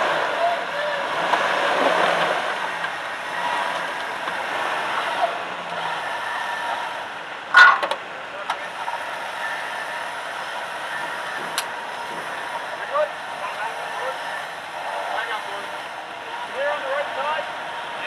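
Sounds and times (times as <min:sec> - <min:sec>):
vehicle engine humming: 0:00.0 - 0:18.0
sharp loud clack: 0:07.5 - 0:08.0.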